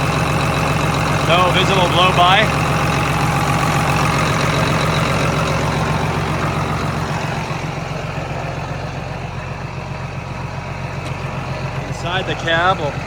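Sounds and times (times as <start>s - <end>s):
tractor diesel engine idling: 0.0s - 13.0s.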